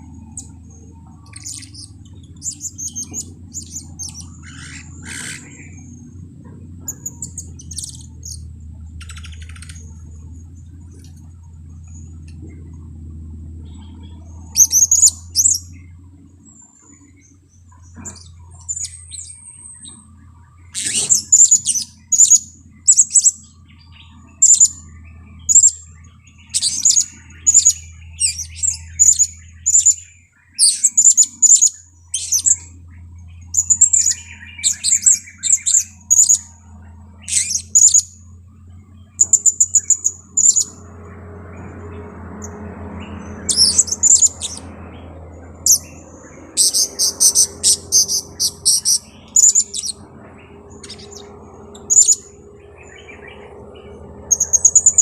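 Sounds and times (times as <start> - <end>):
parrot high-pitched chirps: 1.3 - 5.8, 26.5 - 30.0, 37.3 - 38.1, 43.4 - 44.7, 46.5 - 50.0
parrot rattling trills: 42.1 - 55.0.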